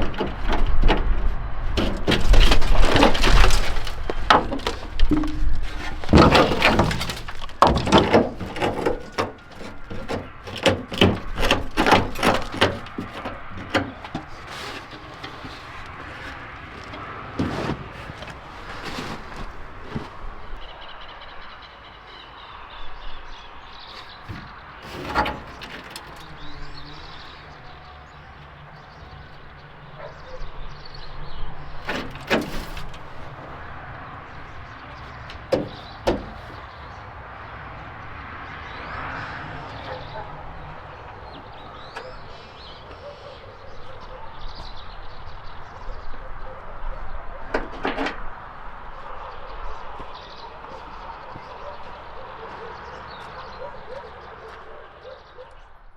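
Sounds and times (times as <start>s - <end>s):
sharp knocks and clatter: 0.0s - 20.2s, 24.0s - 27.2s, 31.8s - 36.8s.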